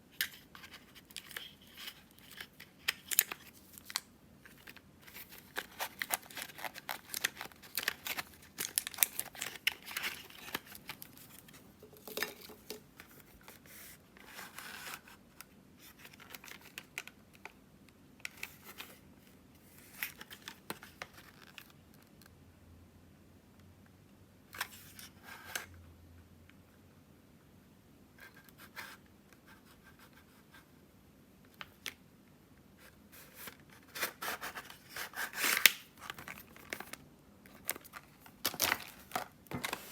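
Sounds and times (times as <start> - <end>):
packaging crinkling and tearing: 0.6 - 12.8, 33.9 - 39.9.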